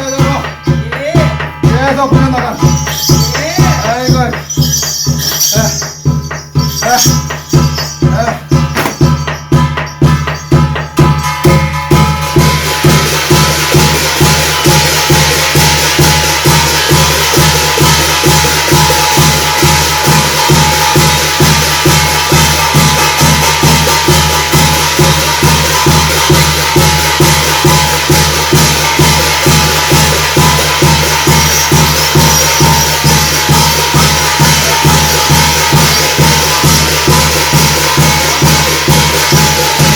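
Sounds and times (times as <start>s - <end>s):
held high tone: 0.0s - 12.1s, 28.7s - 39.9s
metallic jingling: 0.0s - 12.8s, 16.6s - 39.9s
drum beating fast rhythm: 0.0s - 39.9s.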